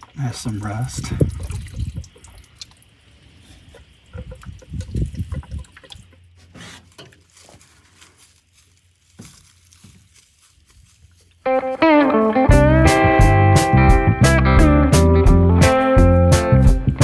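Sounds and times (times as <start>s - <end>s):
liquid trickling and dripping: 0.0s - 7.5s
oil squirting: 0.0s - 7.6s
guitar music: 11.5s - 17.0s.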